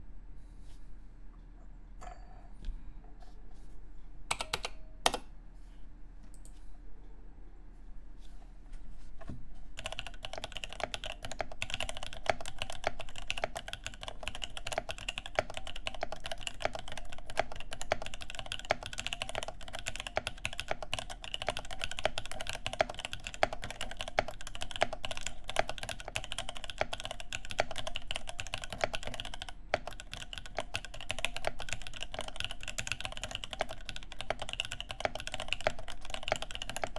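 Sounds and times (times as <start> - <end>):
keyboard keys clicking: 4.3 - 5.3, 9.8 - 36.9
fast typing on keyboard: 9.8 - 36.9.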